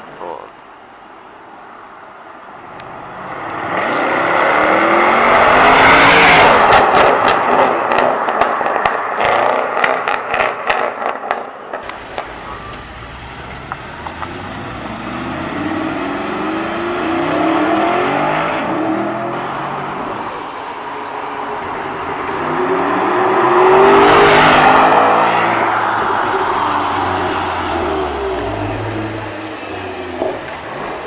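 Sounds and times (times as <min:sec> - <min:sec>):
car engine revving and accelerating: 0:02.9 - 0:11.2, 0:11.9 - 0:20.3, 0:21.4 - 0:31.0
engine sharp pops: 0:06.7 - 0:12.9.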